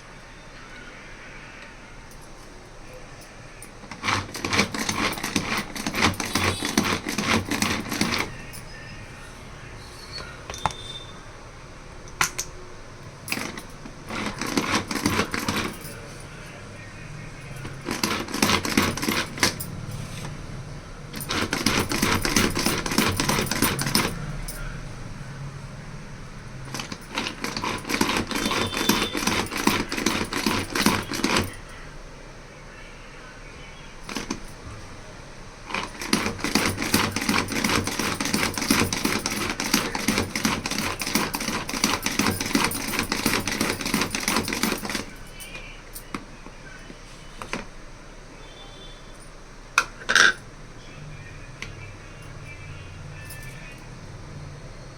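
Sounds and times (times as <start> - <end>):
kitchen utensils clattering: 3.9 - 8.8, 49.8 - 50.4.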